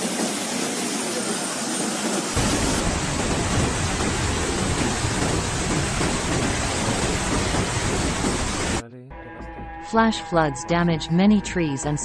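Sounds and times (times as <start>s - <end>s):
heavy rain hissing: 0.0s - 8.8s
deep rumble: 2.4s - 8.8s.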